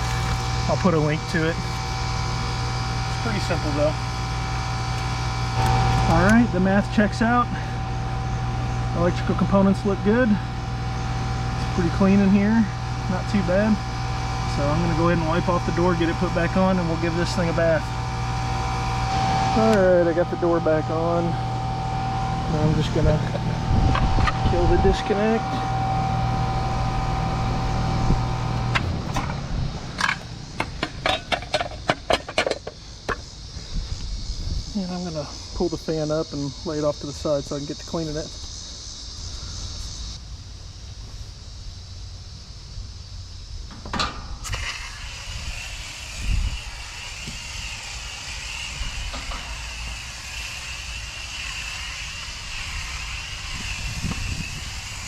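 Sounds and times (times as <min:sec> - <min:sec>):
air conditioner humming: 0:00.0 - 0:55.0
sharp clicks and knocks: 0:30.0 - 0:33.3
hose spray nozzle hissing: 0:44.4 - 0:55.0.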